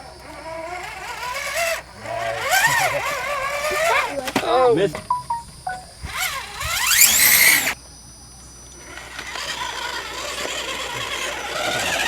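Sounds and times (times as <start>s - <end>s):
electric motor whining: 0.0s - 4.4s, 5.8s - 7.8s, 8.8s - 12.0s.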